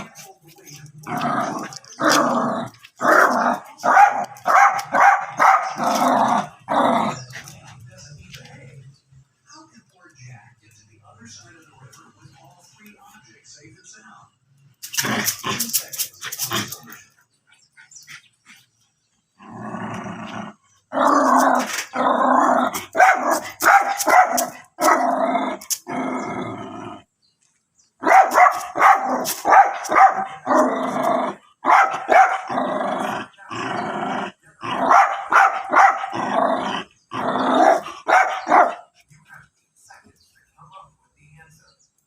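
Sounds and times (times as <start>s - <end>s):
small dogs barking and growling: 0.0s - 8.7s, 14.8s - 17.2s, 19.3s - 27.1s, 28.0s - 39.5s.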